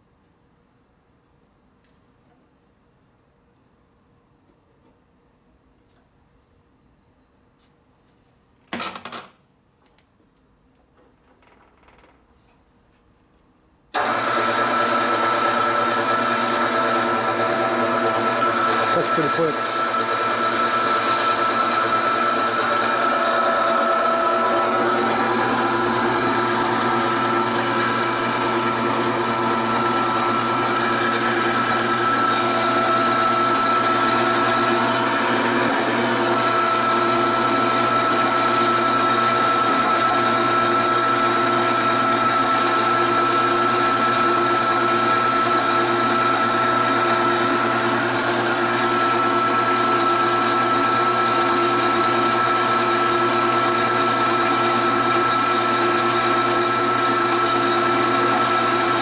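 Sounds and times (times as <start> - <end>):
power bandsaw cutting metal: 14.0 - 59.0.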